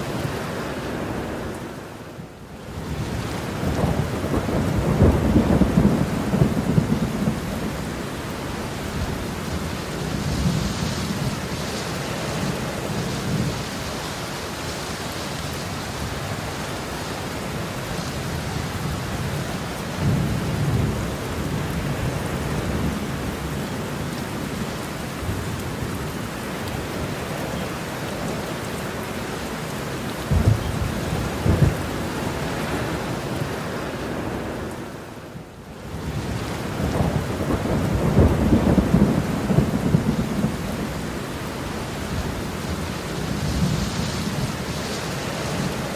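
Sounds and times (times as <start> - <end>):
heavy rain falling: 0.0 - 45.9
thunder rumbles and claps: 3.0 - 8.0, 30.3 - 32.0, 36.2 - 41.1.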